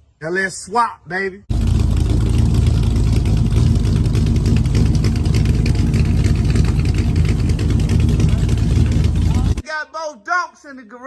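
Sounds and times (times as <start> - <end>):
car engine idling: 1.5 - 9.6.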